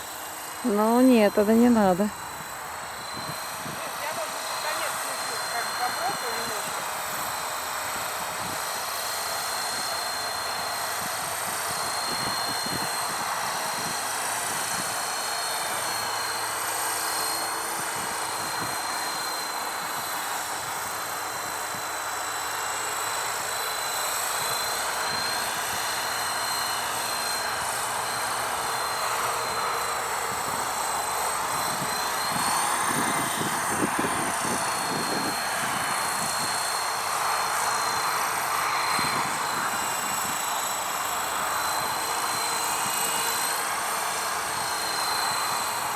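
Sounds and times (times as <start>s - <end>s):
helicopter engine and rotor: 0.0s - 45.9s
high whine: 23.1s - 45.9s.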